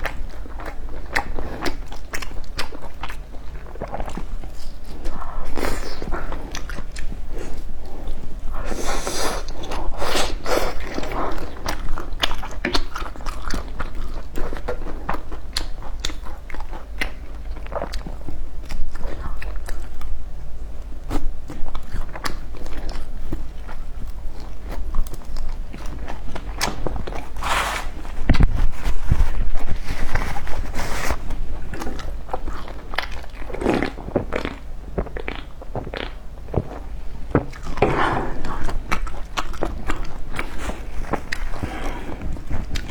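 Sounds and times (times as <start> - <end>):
person chewing crunchy food: 0.0 - 42.9.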